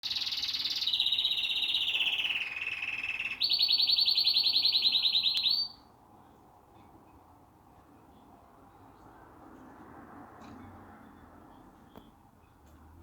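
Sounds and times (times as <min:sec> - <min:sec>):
canary singing trills: 0:00.0 - 0:05.8.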